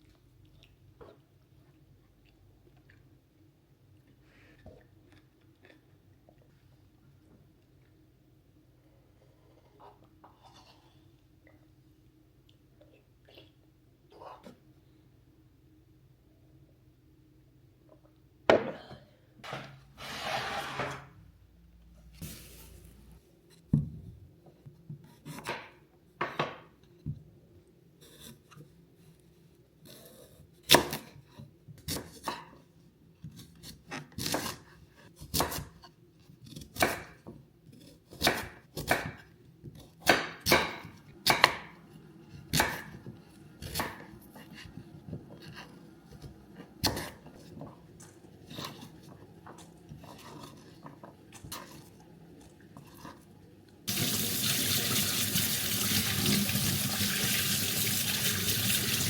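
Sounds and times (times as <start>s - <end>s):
knife chopping on cutting board: 36.5s - 41.8s, 42.5s - 44.3s.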